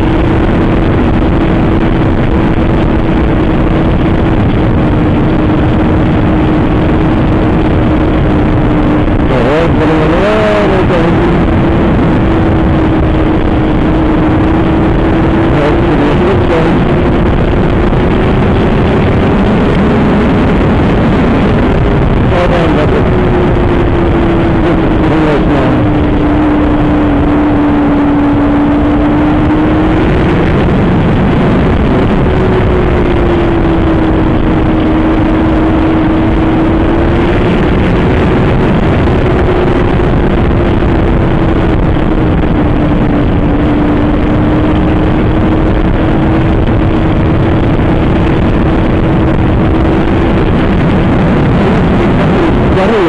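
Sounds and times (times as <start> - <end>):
motorcycle engine at speed: 0.0 - 53.0
wind roar: 0.0 - 53.0.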